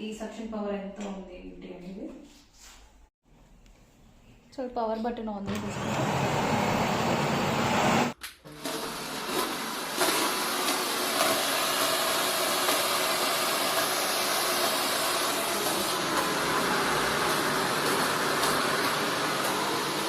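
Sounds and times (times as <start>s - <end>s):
vacuum cleaner running: 5.5s - 20.0s.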